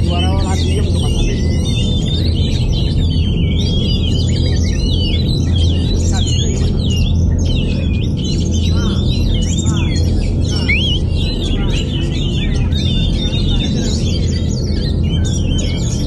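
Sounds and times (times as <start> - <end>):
bird singing whistled notes: 0.0 - 16.0
steady low hum: 0.0 - 16.0.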